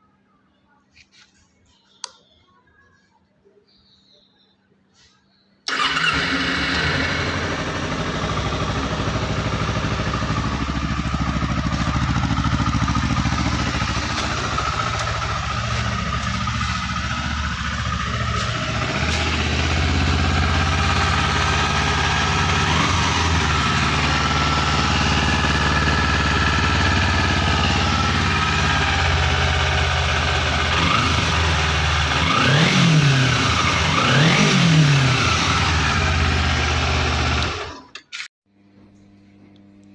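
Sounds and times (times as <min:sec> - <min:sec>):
motorcycle engine idling: 0:05.7 - 0:37.8
motorcycle throttle blips: 0:07.5 - 0:34.6.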